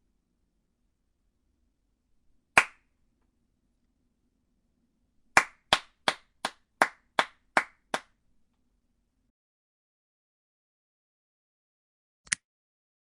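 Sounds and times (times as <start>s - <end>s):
hand claps: 2.6s - 2.8s, 5.4s - 8.2s.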